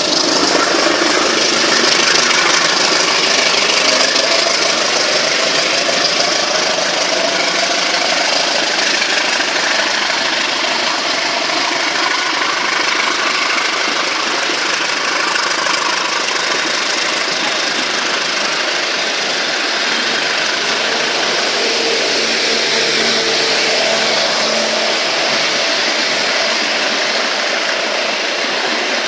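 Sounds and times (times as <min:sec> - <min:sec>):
train rushing noise: 0:00.0 - 0:29.0.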